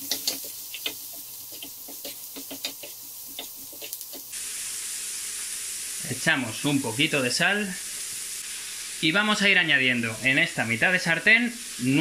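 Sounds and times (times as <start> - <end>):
wooden spatula scraping a pan: 0.0 - 4.3
vegetables sizzling in oil: 0.0 - 12.0.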